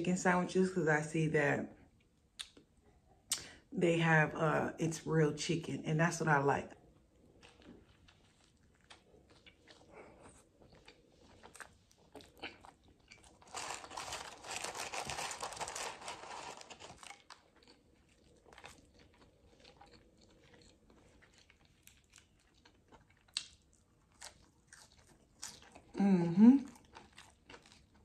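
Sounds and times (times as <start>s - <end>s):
chewing and crunching crispy food: 6.7s - 28.0s
chewing fries: 6.9s - 28.0s.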